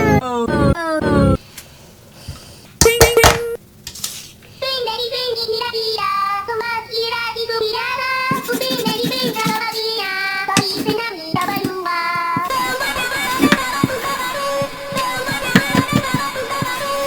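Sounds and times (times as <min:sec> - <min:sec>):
high childlike voice singing: 0:04.6 - 0:17.0.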